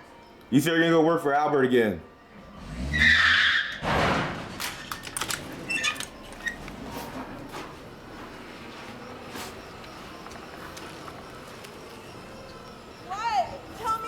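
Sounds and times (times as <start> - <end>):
car crashing into garage door: 2.6 - 7.4
rattles and clicks: 3.9 - 7.5.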